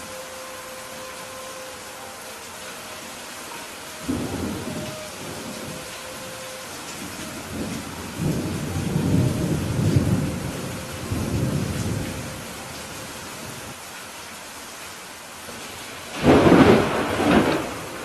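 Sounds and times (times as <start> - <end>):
steady rain: 0.0 - 18.0
thunder rumbling: 4.0 - 13.7, 16.1 - 18.0
thunder crack: 16.2 - 18.0.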